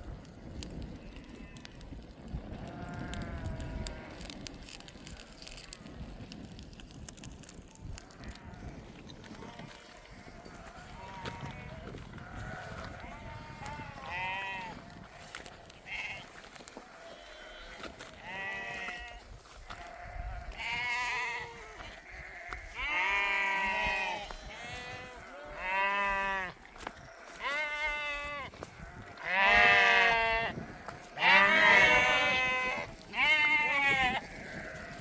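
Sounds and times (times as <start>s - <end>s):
sheep bleating: 2.6s - 4.3s, 8.0s - 14.8s, 15.8s - 35.0s.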